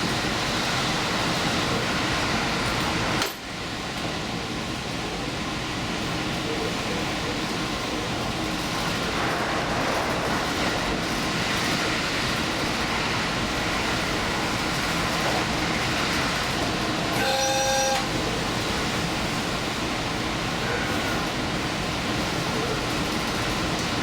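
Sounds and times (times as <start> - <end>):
train wheels rumbling on track: 0.0 - 17.2, 18.0 - 24.0
two-note train horn blast: 17.2 - 18.2.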